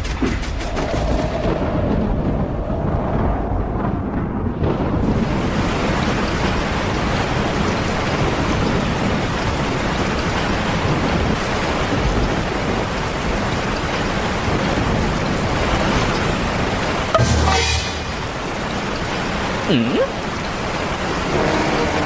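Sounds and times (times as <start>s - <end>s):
low rumble: 0.0s - 5.9s, 14.4s - 19.3s
heavy rain falling: 0.0s - 22.0s.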